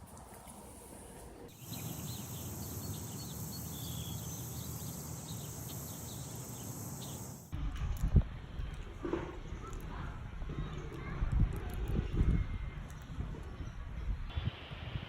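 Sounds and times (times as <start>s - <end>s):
bird chirps: 1.5s - 7.5s
steady high hiss: 1.5s - 7.5s.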